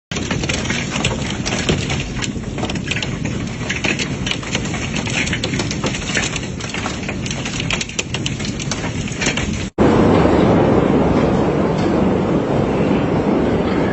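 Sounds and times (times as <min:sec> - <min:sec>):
heavy rain: 0:00.1 - 0:13.9
wind: 0:09.8 - 0:13.9.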